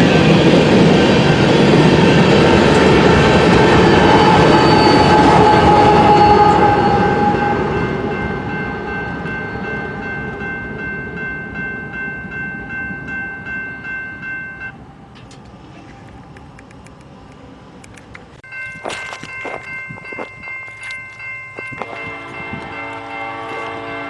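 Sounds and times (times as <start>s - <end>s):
freight train rumbling past: 0.0s - 24.0s
pulsing ringing tone: 3.3s - 14.8s, 18.4s - 24.0s.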